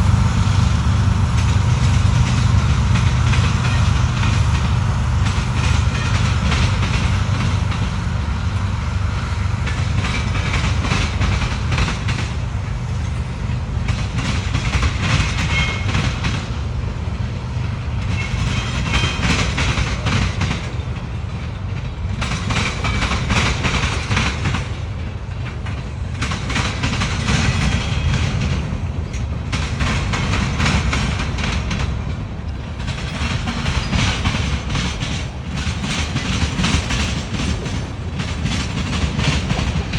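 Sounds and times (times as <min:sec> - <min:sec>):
freight train rolling past: 0:00.0 - 0:39.9
train wheels rattling: 0:00.0 - 0:39.9.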